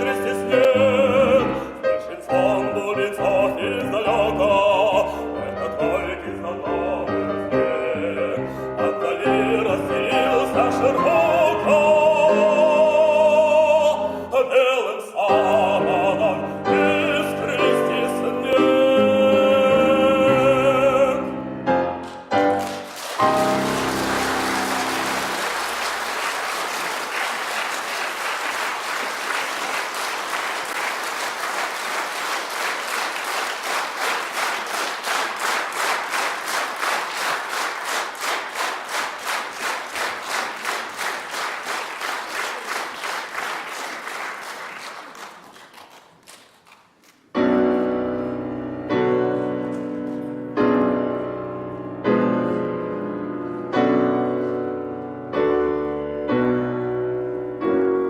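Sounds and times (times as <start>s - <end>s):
piano playing slow chords: 15.3s - 25.9s, 47.4s - 58.0s
audience rhythmic clapping: 21.9s - 47.3s.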